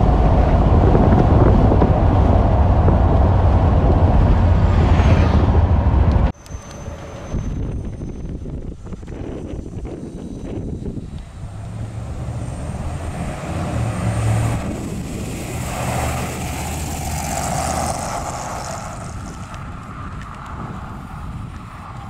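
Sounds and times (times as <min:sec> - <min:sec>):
car engine driving past: 0:11.1 - 0:19.6.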